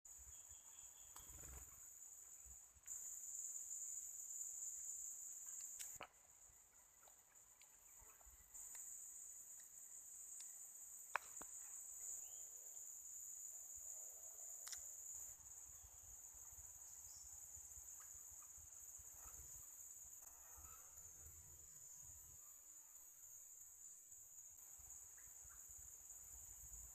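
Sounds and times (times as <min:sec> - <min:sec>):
insect chorus trilling: 0:00.1 - 0:26.9
faint clicks: 0:01.1 - 0:01.7, 0:05.4 - 0:06.2, 0:14.6 - 0:14.9.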